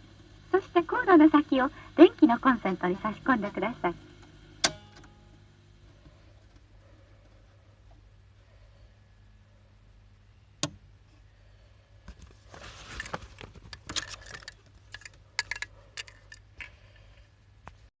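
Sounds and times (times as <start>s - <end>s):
low steady hum: 0.0s - 17.9s
sharp mechanical click: 4.6s - 5.1s
rattling clicks of mechanism: 12.9s - 16.8s.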